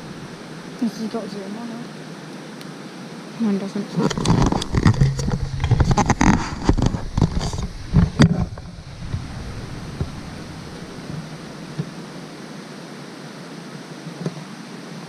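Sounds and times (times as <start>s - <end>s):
waterfall rushing: 0.0s - 3.4s, 6.5s - 15.0s.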